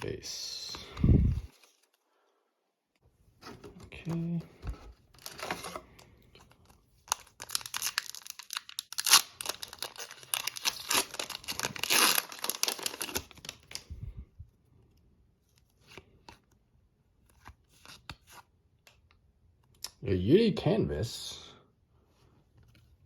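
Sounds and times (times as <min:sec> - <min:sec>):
foil wrapper tearing and crinkling: 0:07.1 - 0:13.8.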